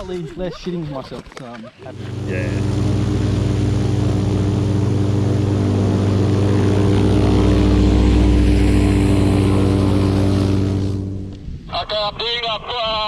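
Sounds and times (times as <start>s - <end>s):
propeller aircraft engine running: 1.8s - 11.7s.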